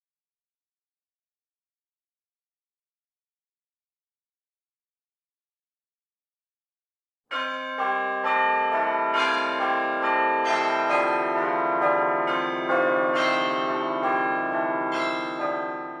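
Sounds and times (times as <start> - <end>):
tune on bell-like chimes: 7.3 - 16.0.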